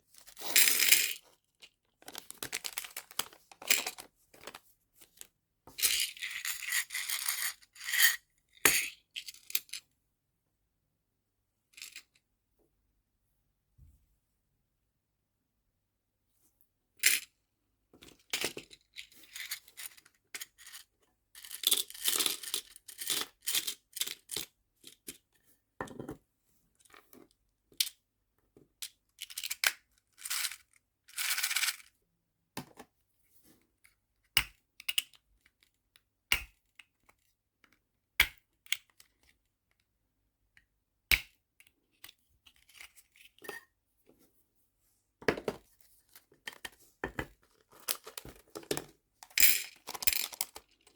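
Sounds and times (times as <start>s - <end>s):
packaging crinkling: 2.0s - 3.6s.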